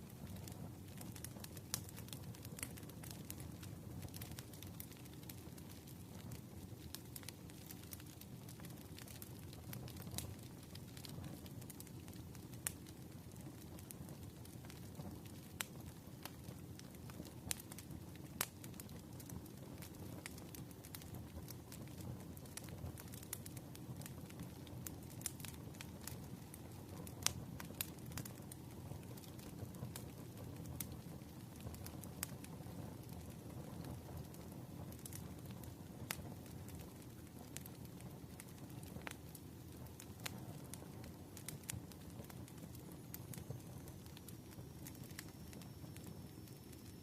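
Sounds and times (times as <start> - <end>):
wood fire crackling and popping: 0.0 - 47.0.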